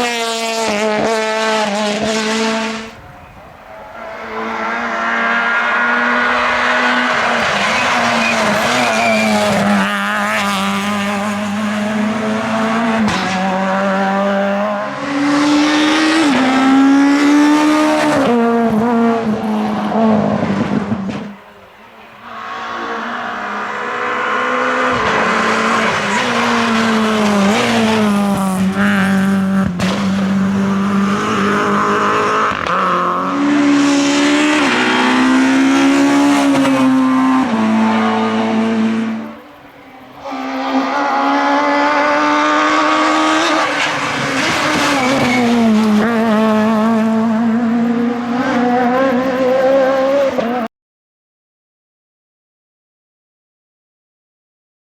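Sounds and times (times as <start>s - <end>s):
rally car engines revving: 0.0s - 50.7s.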